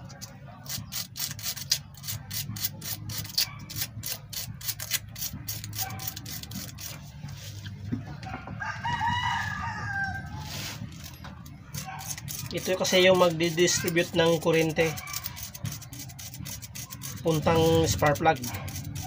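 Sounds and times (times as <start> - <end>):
sandpaper rubbing on metal: 0.6 - 7.6, 10.4 - 19.0
rooster crowing: 8.2 - 10.6.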